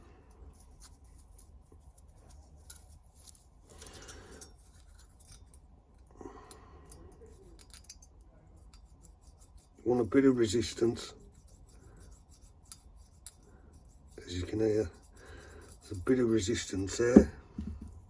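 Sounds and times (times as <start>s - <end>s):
metal blade scraping in ring gap: 2.3s - 5.6s.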